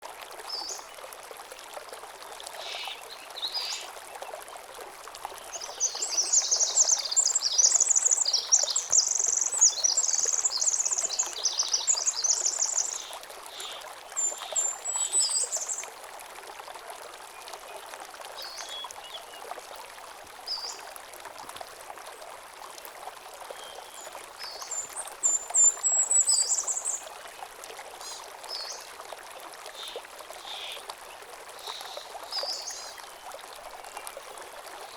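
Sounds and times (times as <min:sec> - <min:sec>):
stream trickling over stones: 0:00.0 - 0:34.9
songbirds singing: 0:05.5 - 0:15.8.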